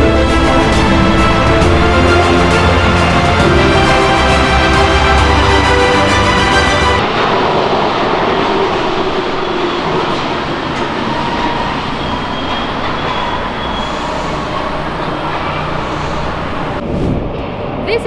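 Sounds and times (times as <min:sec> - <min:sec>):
metro train on rails: 0:00.0 - 0:18.0.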